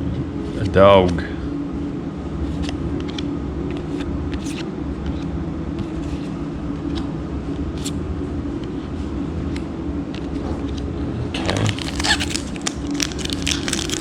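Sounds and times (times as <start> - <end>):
low background hum: 0.0 - 14.0
trading cards clicking and rustling: 11.4 - 14.0.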